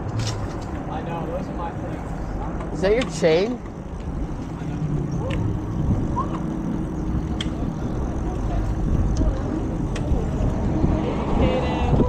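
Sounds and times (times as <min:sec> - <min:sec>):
wind and road noise from bicycle: 0:00.0 - 0:12.0
sharp clicks: 0:07.1 - 0:07.7.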